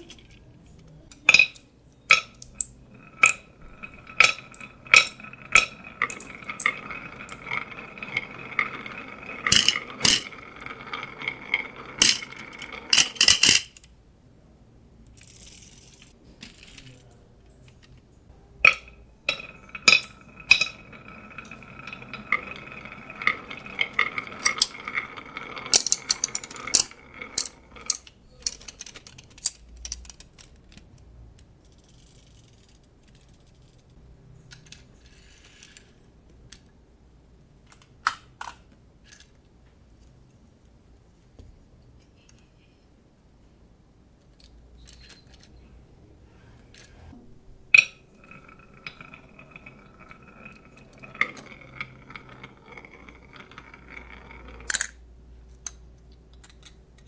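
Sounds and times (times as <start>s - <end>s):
marbles clattering down wooden run: 1.3s - 13.7s, 18.6s - 30.5s, 47.5s - 55.0s
ringing hum of rolling marbles: 1.3s - 13.8s, 18.6s - 30.2s, 47.1s - 55.8s.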